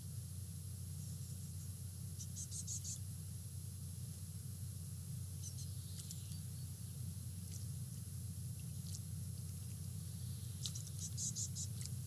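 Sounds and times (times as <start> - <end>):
steady low hum: 0.0 - 12.0
small birds chirping: 1.0 - 3.1, 5.3 - 12.0.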